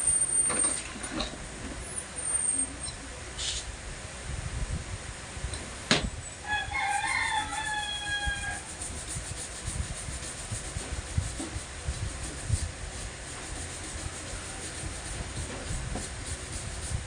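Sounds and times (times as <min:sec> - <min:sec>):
rooster crowing: 0:06.4 - 0:08.7.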